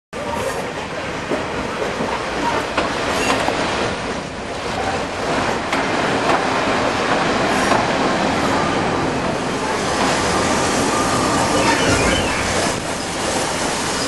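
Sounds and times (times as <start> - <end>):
train carriages rolling on rails: 0.2 - 14.0
faint wheel squeal: 10.8 - 13.2.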